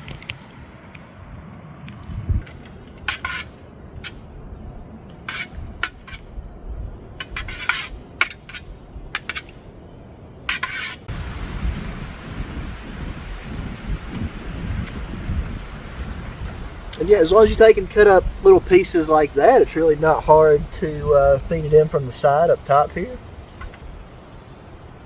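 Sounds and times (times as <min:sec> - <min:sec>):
wind buffeting microphone: 0:00.0 - 0:03.0, 0:03.6 - 0:09.6, 0:11.1 - 0:25.0
metal scraping on cook pot: 0:03.1 - 0:04.2, 0:05.2 - 0:06.3, 0:07.2 - 0:09.5, 0:10.5 - 0:11.1.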